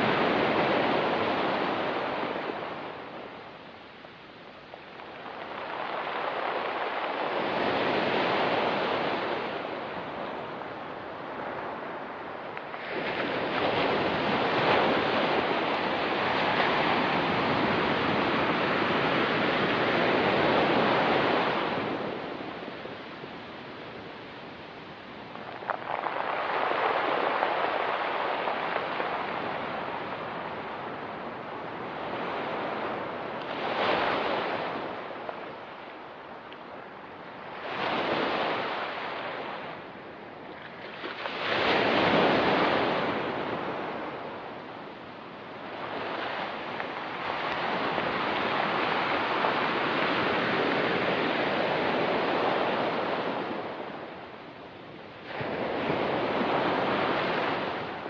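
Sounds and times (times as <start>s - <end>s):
waves breaking on pebble beach: 4.9s - 12.1s, 25.2s - 35.6s.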